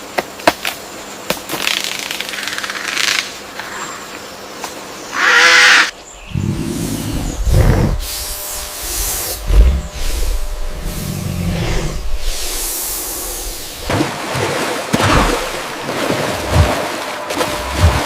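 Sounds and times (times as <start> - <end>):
animal pitched cry: 5.1 - 12.2
animal low growls: 6.2 - 13.9.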